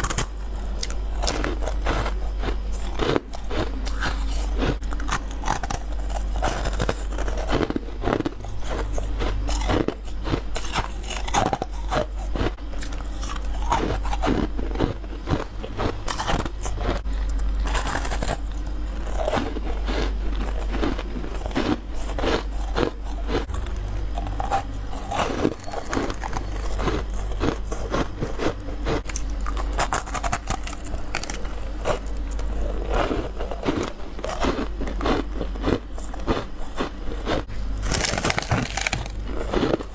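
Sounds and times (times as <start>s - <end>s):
low hum: 0.0s - 39.9s
crunching bites into ice: 29.0s - 39.9s.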